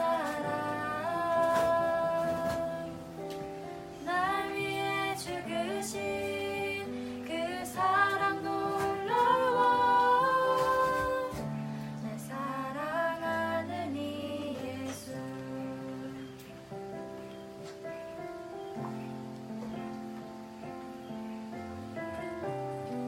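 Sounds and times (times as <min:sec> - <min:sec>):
women singing worship song: 0:00.0 - 0:16.6.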